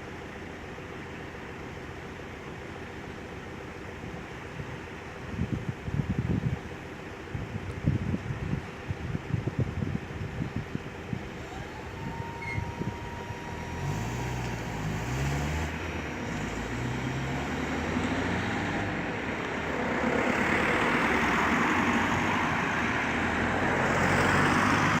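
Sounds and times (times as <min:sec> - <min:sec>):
road noise: 0:00.0 - 0:25.0
vehicle engine approaching: 0:07.3 - 0:25.0.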